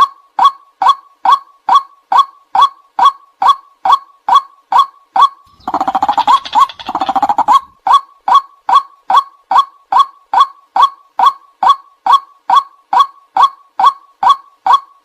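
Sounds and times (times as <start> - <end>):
waterhen calling: 5.5 - 7.8.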